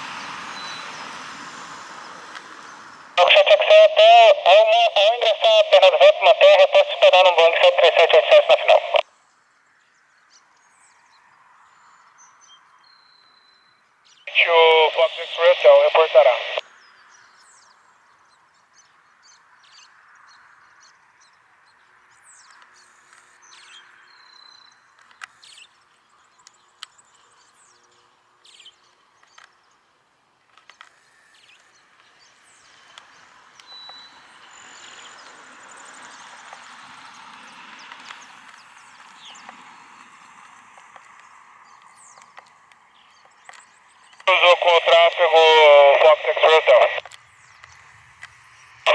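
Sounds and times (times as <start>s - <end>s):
faint outdoor hiss: 1.9s - 10.7s, 14.1s - 20.7s, 38.1s - 48.9s
birds chirping: 2.0s - 9.0s, 9.9s - 48.9s.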